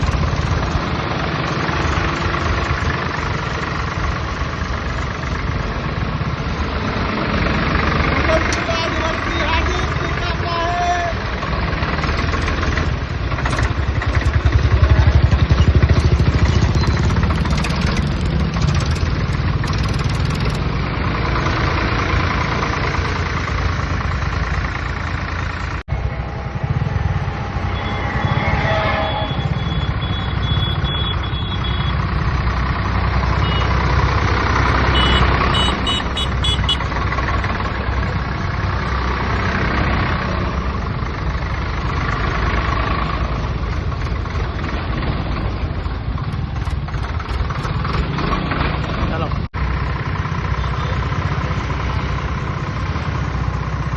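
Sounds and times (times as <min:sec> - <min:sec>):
tractor diesel engine running: 0:00.0 - 0:53.9
short high beeps: 0:27.6 - 0:31.9.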